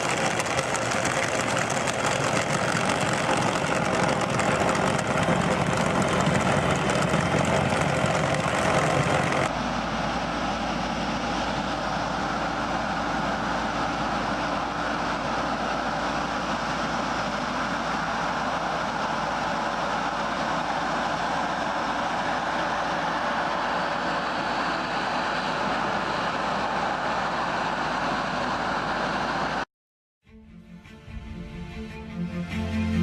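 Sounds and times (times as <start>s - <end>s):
machine deep hum: 0.0s - 17.2s
heavy farm machinery drone: 0.0s - 29.6s.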